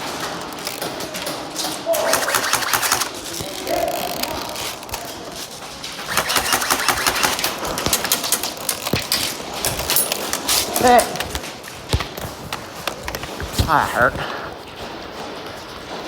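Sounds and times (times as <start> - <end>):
airsoft guns firing: 0.0 - 12.3.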